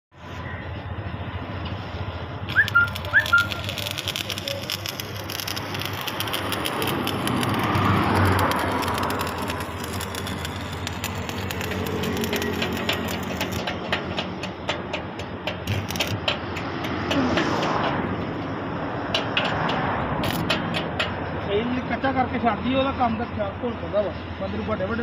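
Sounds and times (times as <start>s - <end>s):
bird whistled calls: 2.5s - 3.7s
rush of noise: 3.4s - 14.5s.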